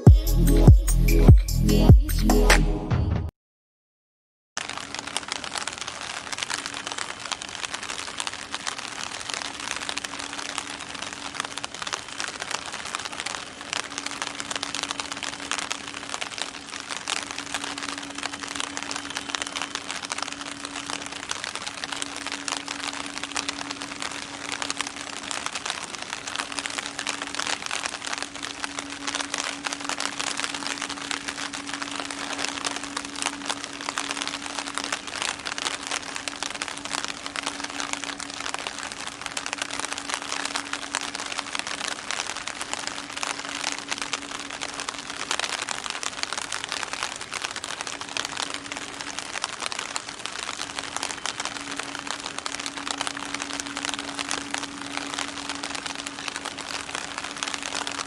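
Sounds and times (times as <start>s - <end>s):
faint steady hum: 4.6s - 58.0s
rain pattering: 4.6s - 58.0s.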